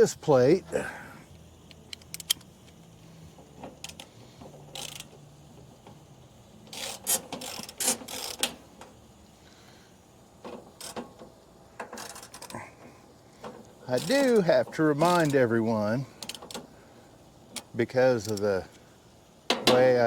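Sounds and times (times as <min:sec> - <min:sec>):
socket ratchet clicking: 0:01.6 - 0:02.8, 0:04.7 - 0:05.2, 0:06.7 - 0:08.6.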